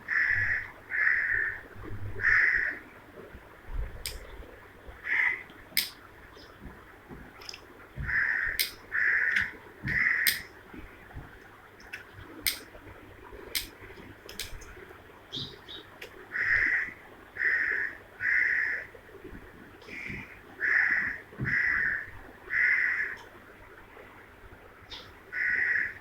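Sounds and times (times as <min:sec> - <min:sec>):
sharp clicks: 0:05.8 - 0:06.0, 0:08.6 - 0:10.5, 0:11.8 - 0:12.7, 0:13.5 - 0:13.7, 0:14.3 - 0:14.7.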